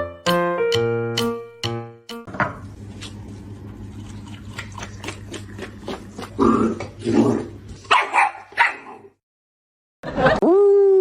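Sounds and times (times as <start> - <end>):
dog barking: 7.9 - 9.1.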